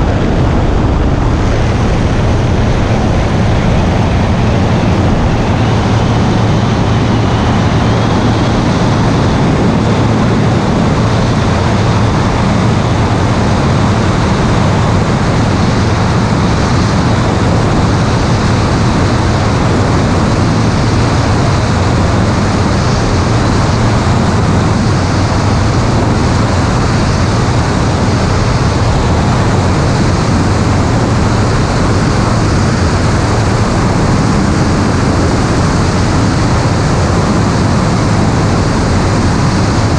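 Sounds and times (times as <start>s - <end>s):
aircraft engine droning: 0.0s - 39.9s
rushing air noise: 0.0s - 39.9s.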